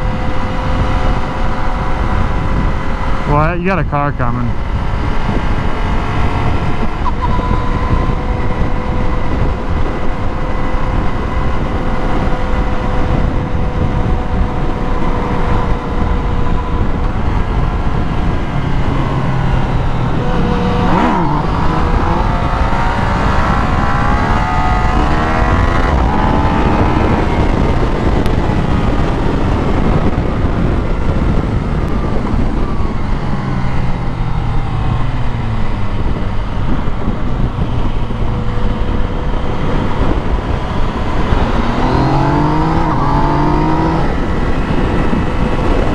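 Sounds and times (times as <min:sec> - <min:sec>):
heavy wind rush: 0:00.0 - 0:45.9
motorcycle engine running: 0:04.3 - 0:45.9
vehicle passing: 0:37.4 - 0:45.9.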